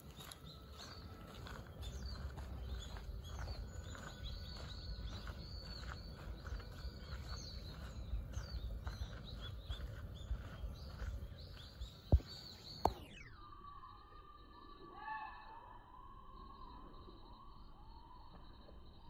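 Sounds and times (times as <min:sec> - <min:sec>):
birds chirping: 0:00.0 - 0:13.4
low rumble: 0:00.2 - 0:12.9.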